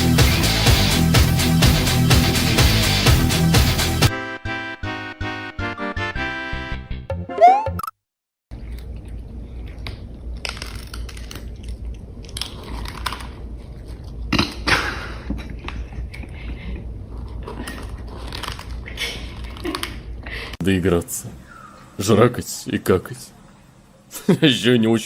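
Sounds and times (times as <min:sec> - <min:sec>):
pet chewing and crunching: 0:08.6 - 0:14.7, 0:15.4 - 0:20.0.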